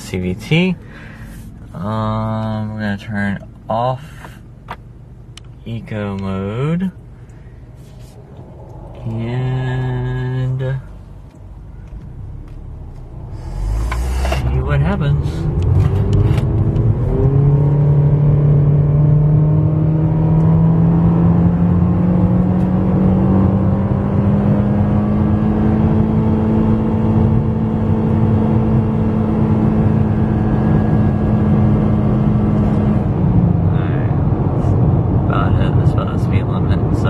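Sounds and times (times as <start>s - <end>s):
low road rumble: 0.0s - 37.0s
car engine accelerating: 7.8s - 37.0s.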